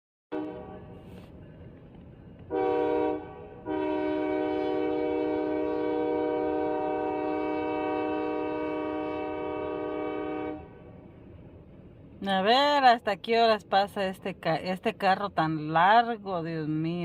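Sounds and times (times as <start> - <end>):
train air horn blasts: 0.3 - 1.3, 2.5 - 11.0
low rumble of passing train: 0.3 - 17.0.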